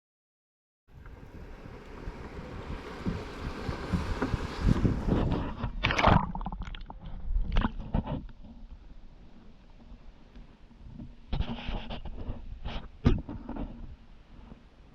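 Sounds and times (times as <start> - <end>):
paddle splashing water: 0.9 - 6.8
wind rumble on microphone: 0.9 - 14.9.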